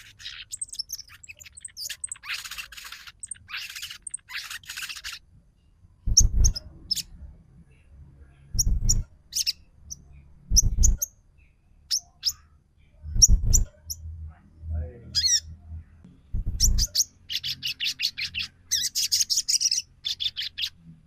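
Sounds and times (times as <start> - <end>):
harsh rasping bird chatter: 0.0 - 5.2, 6.1 - 7.1, 8.6 - 11.1, 16.4 - 20.8
dull low thumps: 6.1 - 6.6, 8.6 - 9.1, 10.5 - 11.0, 13.1 - 13.7, 16.1 - 16.9.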